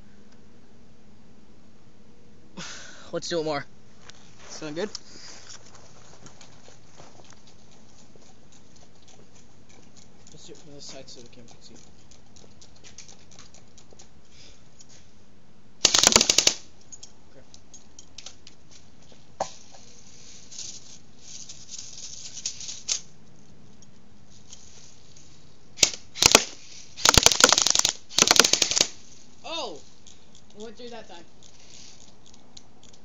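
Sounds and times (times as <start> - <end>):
airsoft gun firing burst: 15.8 - 16.7, 25.8 - 29.0
airsoft gun single shots: 15.8 - 16.7, 25.8 - 29.0.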